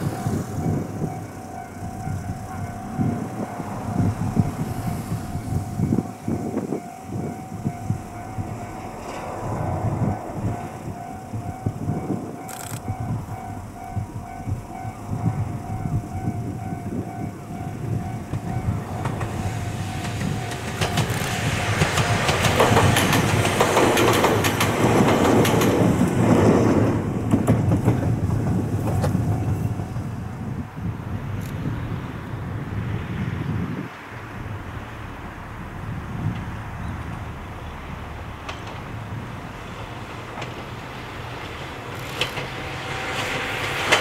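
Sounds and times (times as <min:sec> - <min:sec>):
train wheels clicking over rail joints: 0:00.0 - 0:30.6, 0:36.2 - 0:44.0
level-crossing bell ringing: 0:05.4 - 0:09.0.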